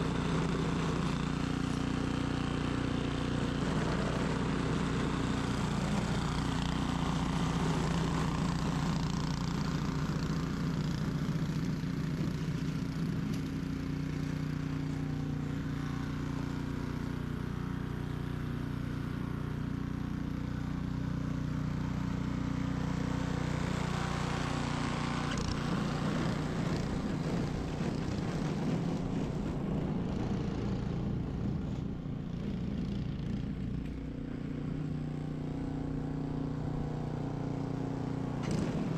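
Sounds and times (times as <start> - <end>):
snow blower engine running: 0.0 - 38.9.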